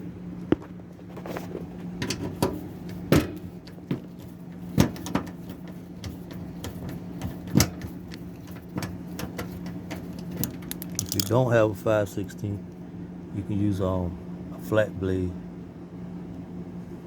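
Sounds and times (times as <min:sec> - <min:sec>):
steady low hum: 0:00.0 - 0:17.0
clicks and knocks of tools: 0:08.1 - 0:11.4.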